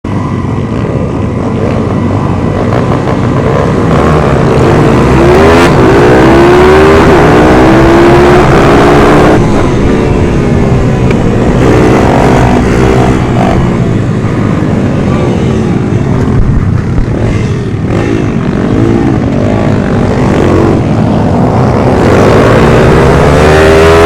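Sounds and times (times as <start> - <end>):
minibike engines at full throttle: 0.0 - 24.0.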